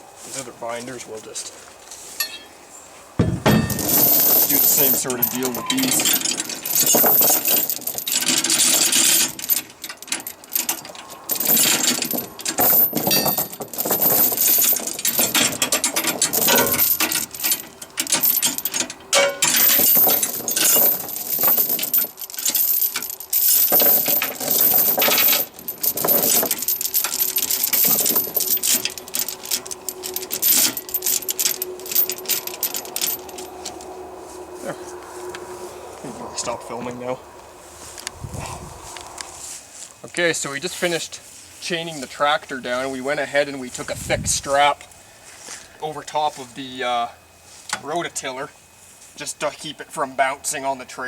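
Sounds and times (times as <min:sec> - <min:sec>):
chain links clinking and rattling: 0:02.2 - 0:02.6, 0:03.2 - 0:34.0.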